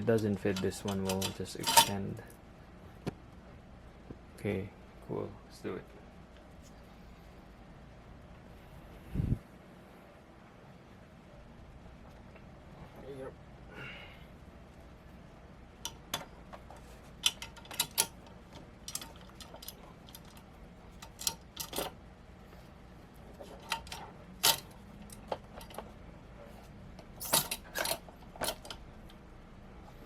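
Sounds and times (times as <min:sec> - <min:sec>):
metal bracket clicking and clinking: 0:00.0 - 0:02.2, 0:15.8 - 0:22.0, 0:23.4 - 0:26.0, 0:27.0 - 0:29.2.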